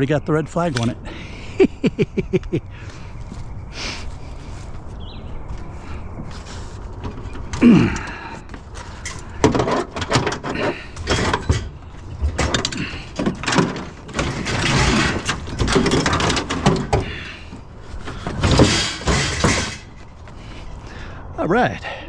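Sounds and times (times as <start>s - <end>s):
scrap metal clanking: 6.3s - 20.6s.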